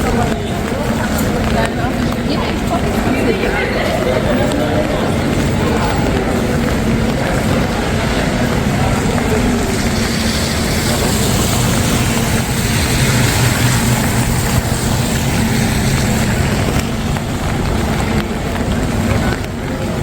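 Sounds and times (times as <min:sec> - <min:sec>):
rain hissing on wet street: 0:00.0 - 0:20.0
vehicle engine running: 0:05.1 - 0:20.0.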